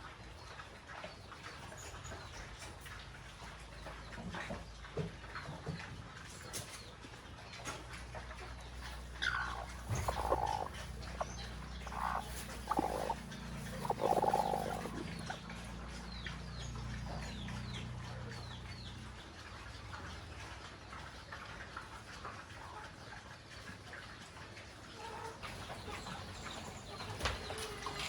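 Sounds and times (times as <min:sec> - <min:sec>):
farm animals calling: 0:07.5 - 0:19.2, 0:24.9 - 0:28.0
steady low hum: 0:08.4 - 0:19.2.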